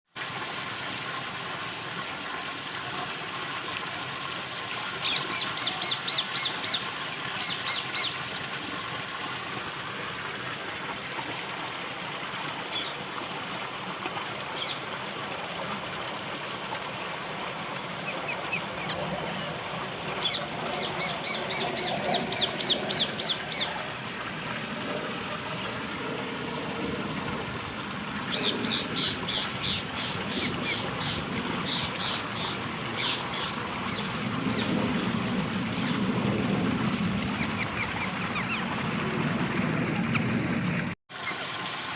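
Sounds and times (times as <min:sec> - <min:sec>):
parakeet calling: 0:18.0 - 0:19.1, 0:20.2 - 0:23.7, 0:28.3 - 0:34.7, 0:37.2 - 0:38.6.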